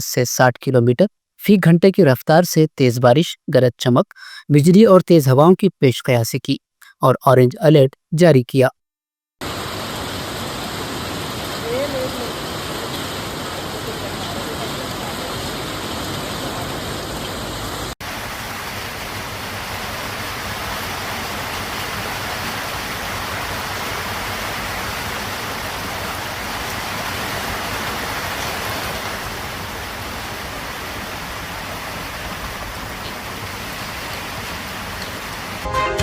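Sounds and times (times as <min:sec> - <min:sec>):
heavy rain pouring: 0:09.4 - 0:36.0.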